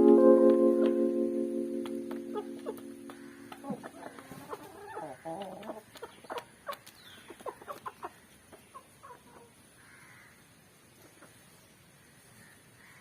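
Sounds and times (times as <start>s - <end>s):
fowl clucking: 2.3s - 9.5s.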